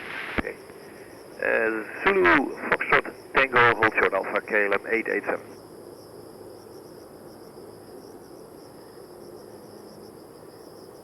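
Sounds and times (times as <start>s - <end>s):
faint low hum: 0.0s - 5.6s
insects chirring: 0.0s - 11.0s.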